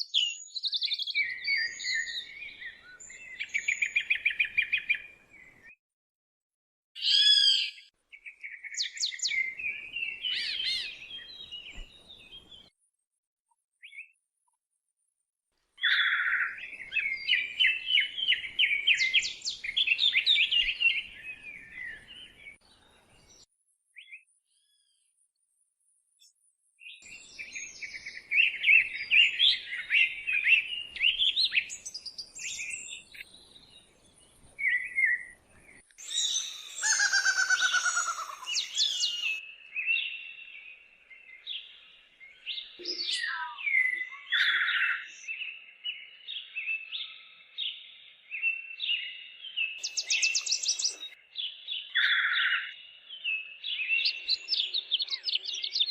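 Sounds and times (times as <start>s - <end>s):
other bird calls: 36.0s - 39.4s
songbird warbling: 36.0s - 39.4s.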